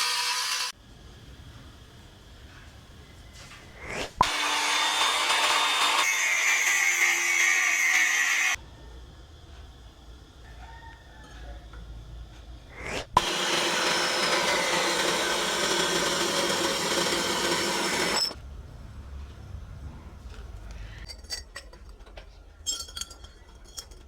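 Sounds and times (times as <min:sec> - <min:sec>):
power tool running: 0:00.0 - 0:00.7, 0:04.0 - 0:08.6, 0:12.9 - 0:18.4.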